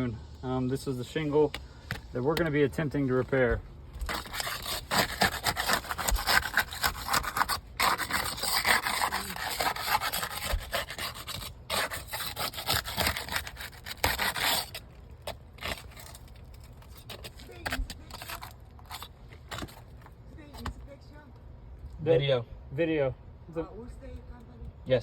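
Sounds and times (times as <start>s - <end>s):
rubbing and scraping: 1.2s - 20.9s.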